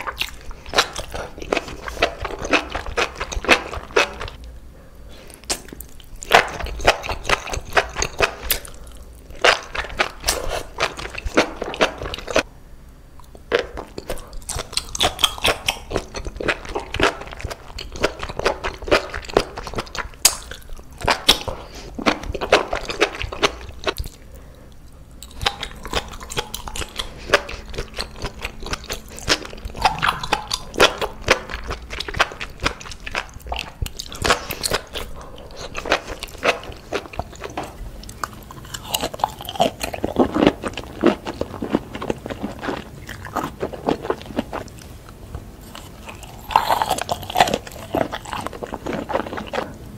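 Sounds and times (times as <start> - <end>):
wet squishy chewing: 0.0 - 4.4, 13.2 - 44.9.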